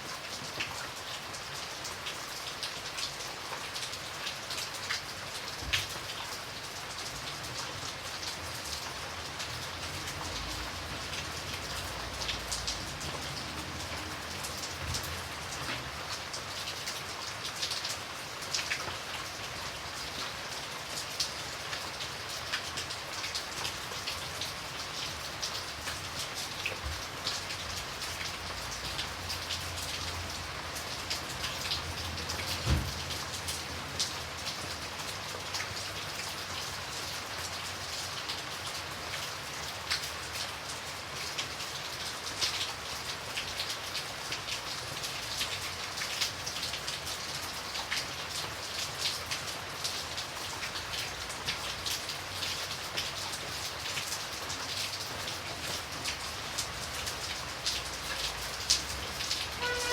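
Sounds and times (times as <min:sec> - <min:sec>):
raindrops pattering on a surface: 0:00.0 - 0:59.9
low thump: 0:32.6 - 0:33.0.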